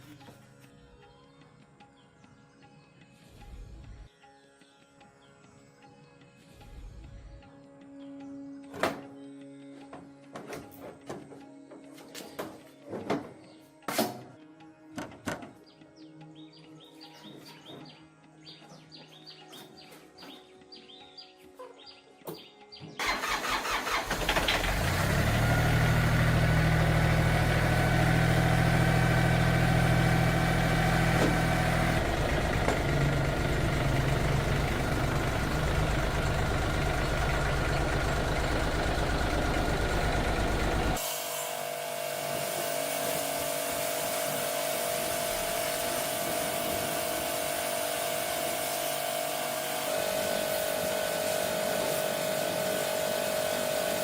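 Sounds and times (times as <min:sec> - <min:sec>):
engine running: 0:23.0 - 0:54.0.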